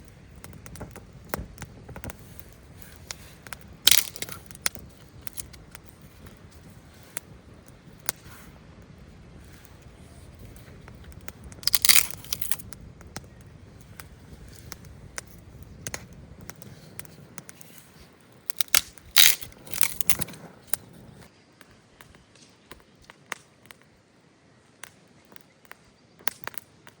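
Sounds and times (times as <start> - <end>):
dry plants rustling and tearing: 0.0 - 8.4, 9.4 - 21.3
small snaps: 0.0 - 8.5, 9.4 - 23.9, 24.8 - 27.0.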